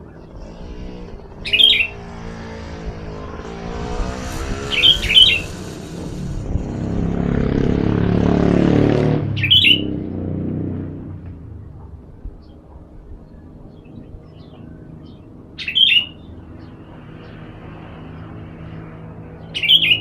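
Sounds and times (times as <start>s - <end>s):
bird chirping calls: 0.0s - 2.6s, 3.8s - 6.3s, 9.4s - 9.9s, 12.2s - 18.4s, 19.3s - 20.0s
vehicle engine humming: 0.0s - 20.0s.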